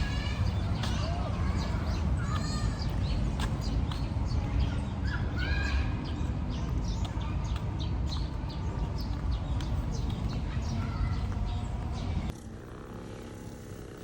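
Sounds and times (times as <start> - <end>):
birds chirping: 0.0 - 12.4
steady low rumble: 0.0 - 12.4.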